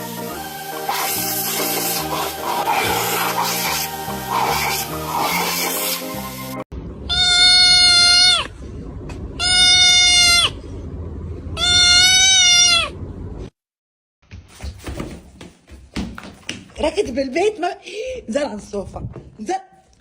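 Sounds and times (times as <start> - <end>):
music: 0.0 - 6.6
long high animal cries: 7.1 - 8.6, 9.4 - 10.6, 11.6 - 13.0.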